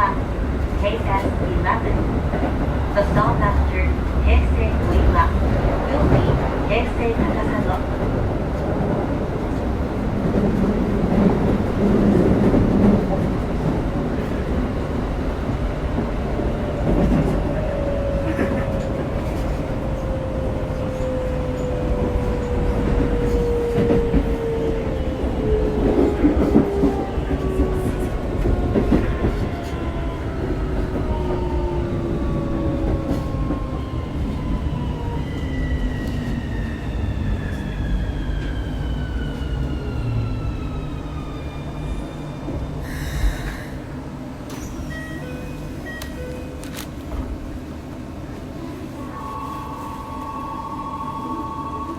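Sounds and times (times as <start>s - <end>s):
wheels rumbling on track: 0.0s - 41.2s.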